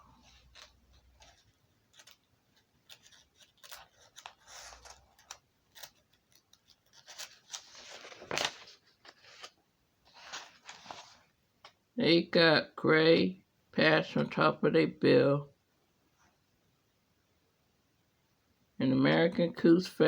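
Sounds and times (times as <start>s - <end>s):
faint rustling and clicking: 0.0s - 11.8s
loud rustle or scrape: 10.1s - 11.3s.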